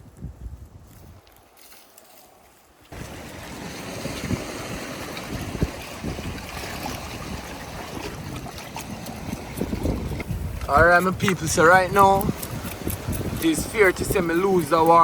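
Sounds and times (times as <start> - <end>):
wind on microphone: 0.0 - 1.4, 2.9 - 15.0
sea surf: 2.9 - 10.0.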